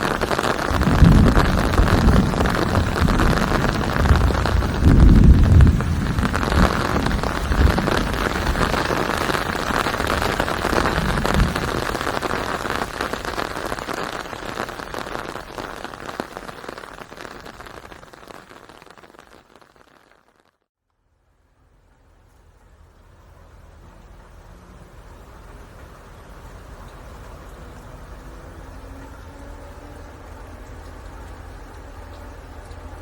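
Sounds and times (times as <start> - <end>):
rain pattering: 0.0 - 33.0
low rumble: 0.7 - 8.8.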